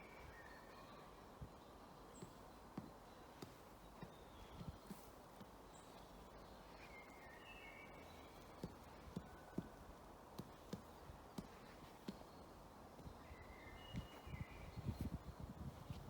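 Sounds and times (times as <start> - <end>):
songbirds whistling: 0.0 - 5.1, 5.7 - 15.5
woodpecker pecking at wood: 2.0 - 6.6, 7.9 - 13.2.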